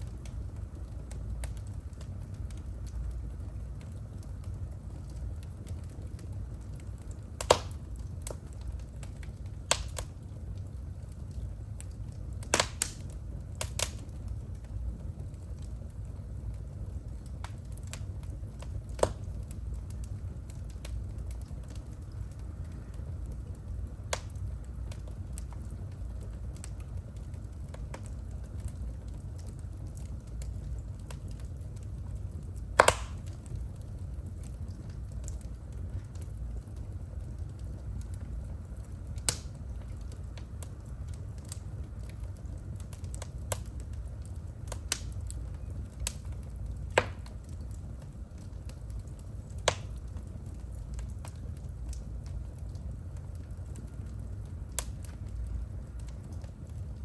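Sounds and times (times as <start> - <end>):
wood fire crackling: 0.0 - 57.0
loud fire pop: 12.5 - 13.0, 32.8 - 33.3, 47.0 - 47.2.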